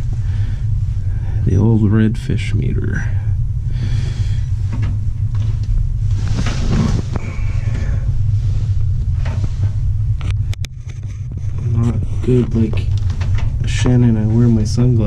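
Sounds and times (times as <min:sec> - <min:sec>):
steady low hum: 0:00.0 - 0:15.0
handling rustling and knocking: 0:04.6 - 0:07.3, 0:09.0 - 0:14.7.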